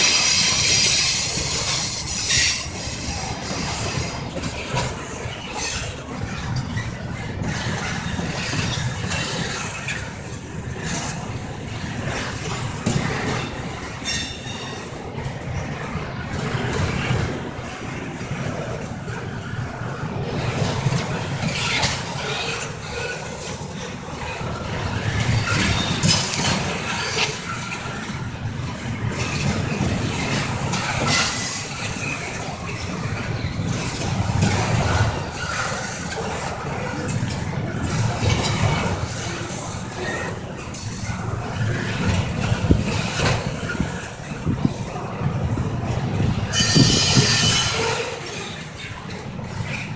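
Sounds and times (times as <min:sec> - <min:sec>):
high-pitched metallic wheel squeal: 0:00.0 - 0:02.8, 0:46.5 - 0:48.7
freight train wheels rumbling: 0:00.0 - 0:49.9
wheels clicking on rails: 0:00.0 - 0:49.9.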